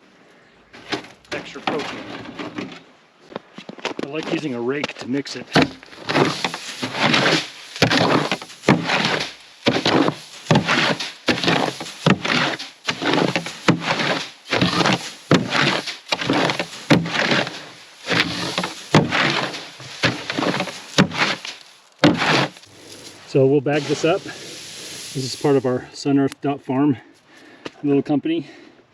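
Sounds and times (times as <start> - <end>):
rake scraping through grain: 5.3 - 25.8.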